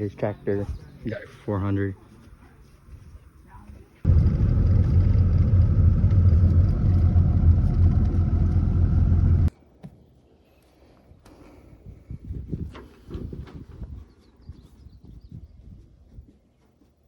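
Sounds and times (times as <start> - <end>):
vehicle engine and road rumble: 4.1 - 9.5.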